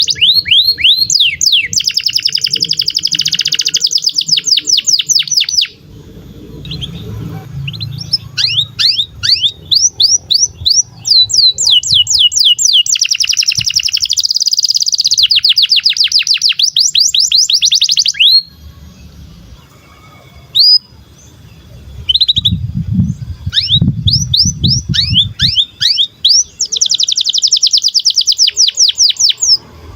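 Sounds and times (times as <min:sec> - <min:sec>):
canary singing: 0:00.0 - 0:29.9
low rumble: 0:05.8 - 0:12.3, 0:18.6 - 0:25.6.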